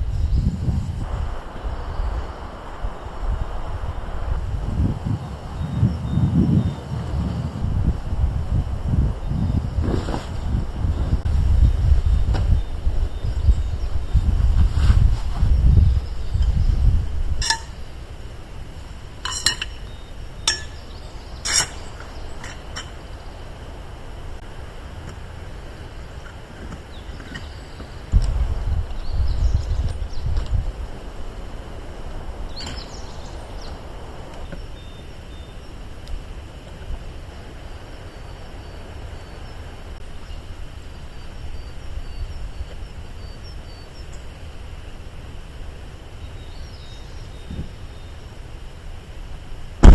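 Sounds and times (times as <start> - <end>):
wind rumble on microphone: 0.0 - 37.7, 46.3 - 48.1, 49.3 - 49.9
light sharp clinks: 19.2 - 19.9.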